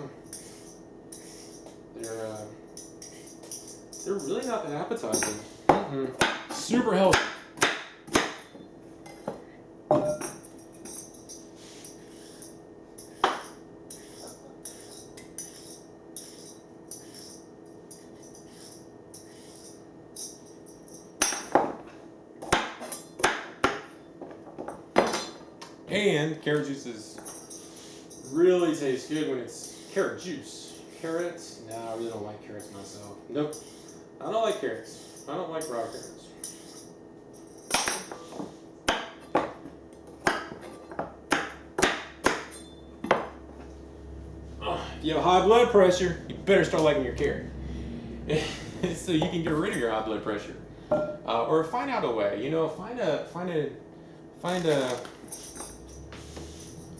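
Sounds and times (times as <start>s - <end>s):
low appliance hum: 0.0s - 56.9s
cutlery clinking against dishes: 9.1s - 11.5s.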